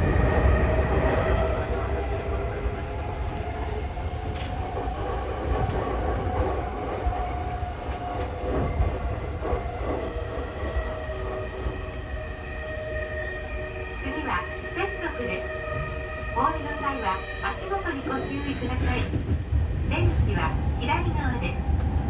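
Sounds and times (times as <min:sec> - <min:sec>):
train wheels rumbling on rail: 0:00.0 - 0:22.0
faint rail clicks: 0:04.2 - 0:06.6, 0:07.8 - 0:10.1.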